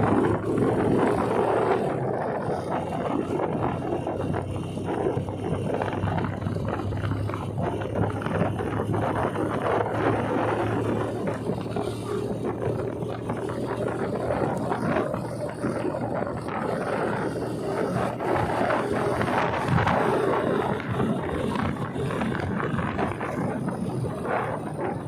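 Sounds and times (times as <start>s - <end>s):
motorcycle engine hum: 0.0s - 25.0s
wind rushing over microphone: 0.0s - 25.0s.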